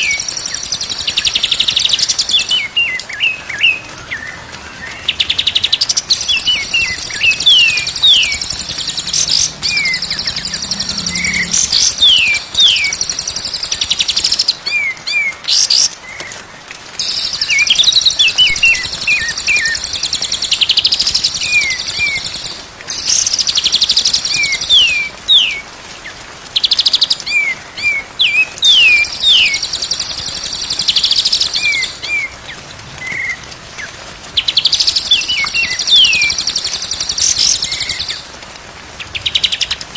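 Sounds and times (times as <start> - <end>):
fast buzzy bird chatter: 5.4 - 14.4.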